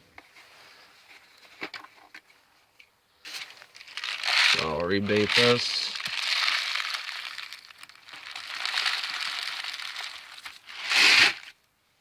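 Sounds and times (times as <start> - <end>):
packaging crinkling and rustling: 3.3 - 11.6.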